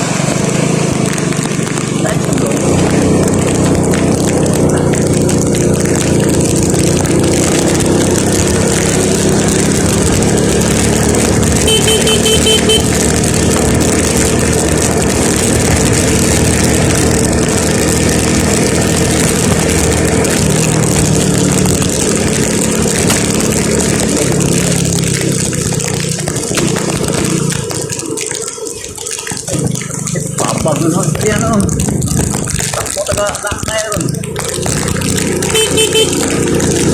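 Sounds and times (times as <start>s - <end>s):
road noise: 0.0s - 36.9s
vehicle engine running: 0.0s - 36.9s
short electronic beeps: 11.6s - 12.9s.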